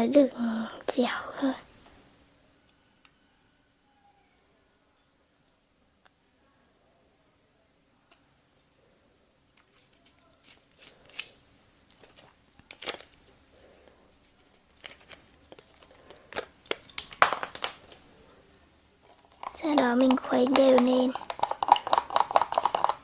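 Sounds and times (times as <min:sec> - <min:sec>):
plastic containers clicking and scraping: 0:11.9 - 0:13.4, 0:14.3 - 0:18.0, 0:19.0 - 0:23.0.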